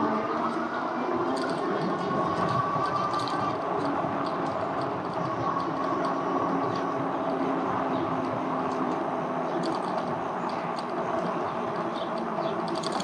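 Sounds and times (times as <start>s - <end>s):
electric bike motor whine: 0.0s - 13.0s
tyre and road noise: 0.0s - 13.0s
light rattling: 7.9s - 13.0s.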